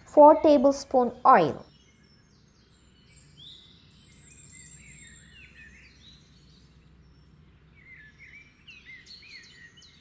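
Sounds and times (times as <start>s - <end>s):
low steady hum: 0.0s - 10.0s
small birds chirping: 0.0s - 10.0s.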